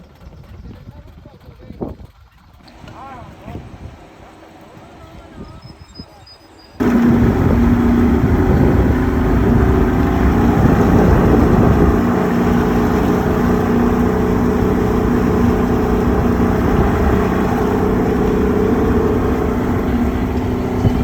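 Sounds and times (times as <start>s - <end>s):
engine running steadily: 6.8s - 21.0s.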